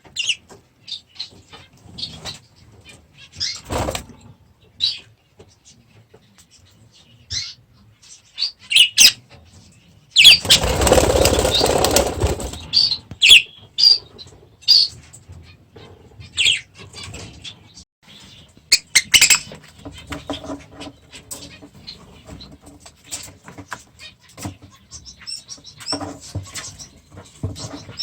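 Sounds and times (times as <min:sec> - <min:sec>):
budgerigars chirping: 0:06.9 - 0:09.2, 0:10.2 - 0:15.0, 0:16.2 - 0:22.6
wings flapping: 0:10.2 - 0:13.4.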